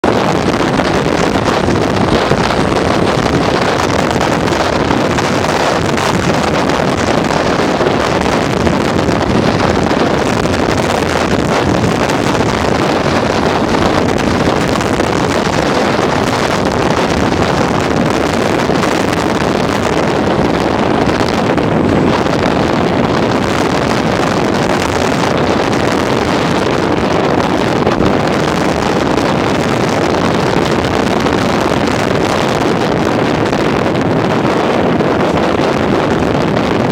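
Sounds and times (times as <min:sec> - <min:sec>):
wind buffeting microphone: 0:00.0 - 0:36.9.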